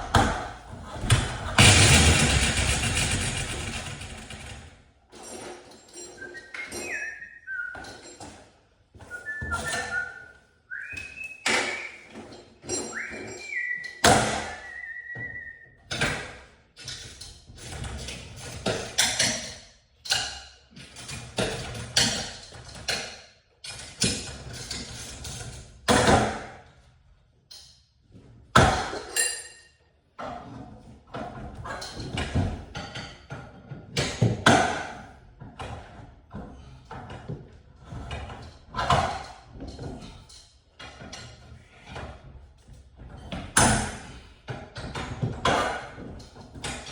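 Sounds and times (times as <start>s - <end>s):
held high tones stepping in pitch: 12.8s - 15.5s.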